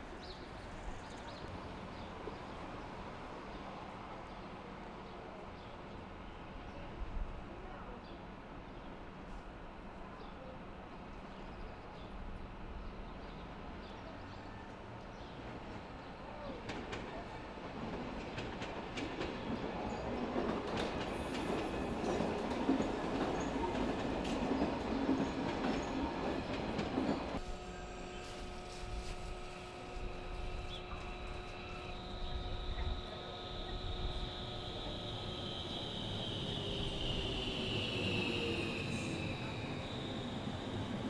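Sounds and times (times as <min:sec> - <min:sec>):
train rolling on rails: 0:10.7 - 0:41.0.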